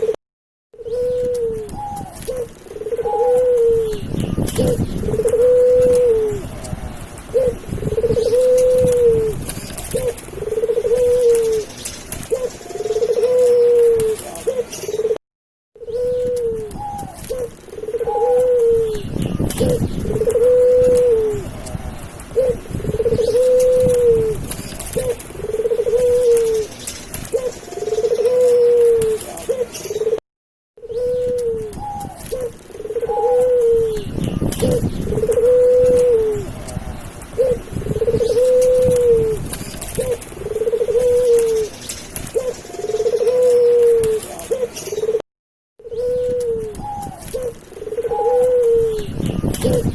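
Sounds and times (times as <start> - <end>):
doves cooing: 0.8 - 15.2, 15.8 - 30.2, 30.8 - 45.2, 45.8 - 49.9.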